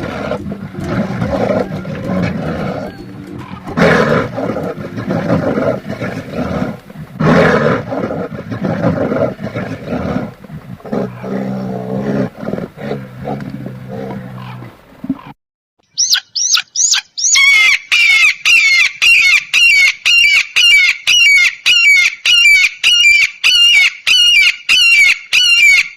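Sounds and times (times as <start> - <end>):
large animals calling: 0.0 - 15.3.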